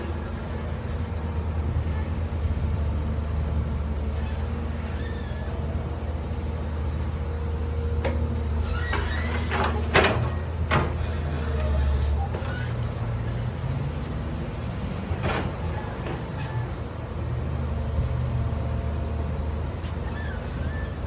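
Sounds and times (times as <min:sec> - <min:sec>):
heavy machine engine humming: 0:00.0 - 0:21.0
metallic clanks and knocks: 0:08.0 - 0:11.8.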